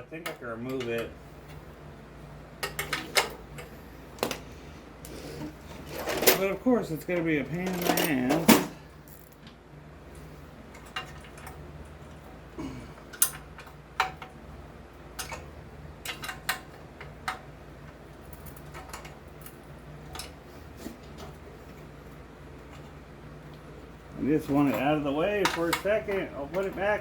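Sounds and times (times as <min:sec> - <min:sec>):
steady low hum: 0:00.0 - 0:27.0
hand tools clicking on metal: 0:24.5 - 0:27.0.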